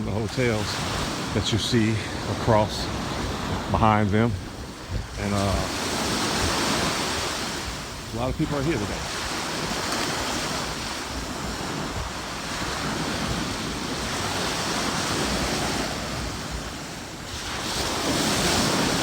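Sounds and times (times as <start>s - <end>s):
ocean surf washing ashore: 0.0s - 19.0s
wind buffeting microphone: 0.0s - 19.0s.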